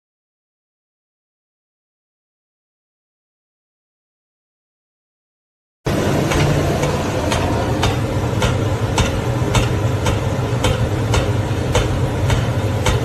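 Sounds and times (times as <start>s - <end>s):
low mechanical hum: 5.9s - 13.0s.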